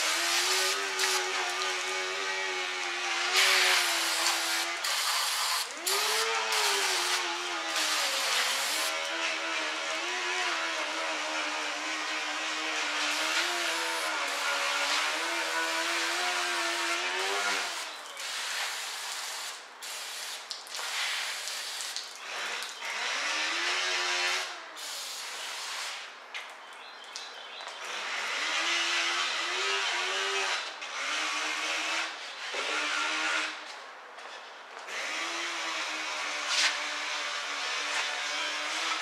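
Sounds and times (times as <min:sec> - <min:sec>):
power drill whining: 0:00.0 - 0:18.0, 0:34.8 - 0:39.0.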